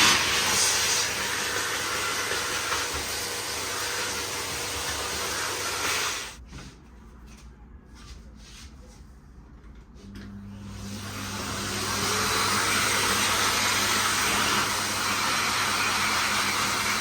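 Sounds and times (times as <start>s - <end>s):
vacuum cleaner running: 0.0s - 6.4s, 10.0s - 17.0s.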